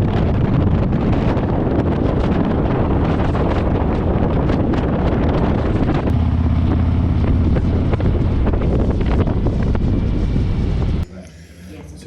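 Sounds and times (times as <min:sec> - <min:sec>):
wind buffeting microphone: 0:00.0 - 0:11.0
motorcycle engine drone: 0:00.0 - 0:12.0.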